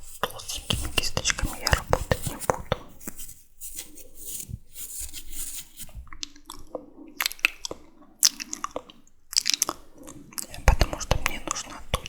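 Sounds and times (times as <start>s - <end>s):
wet mouth clicks and smacks: 6.1s - 12.0s.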